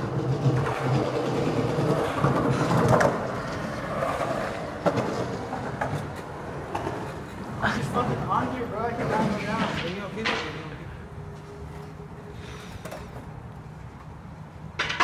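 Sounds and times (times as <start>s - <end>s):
sharp skateboard clack: 0.0s - 7.3s, 9.0s - 10.9s, 14.7s - 15.0s
skateboard wheels rolling on concrete: 0.0s - 15.0s.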